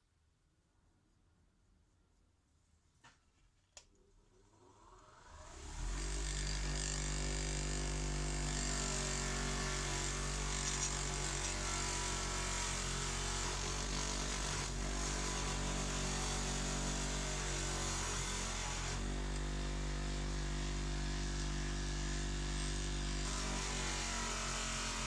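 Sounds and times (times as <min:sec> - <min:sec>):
power tool motor spinning: 0:05.5 - 0:19.6.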